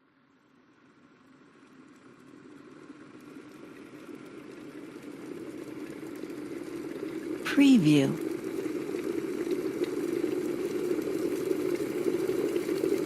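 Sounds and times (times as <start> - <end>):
electric kettle heating water: 2.4 - 7.4, 8.3 - 13.0.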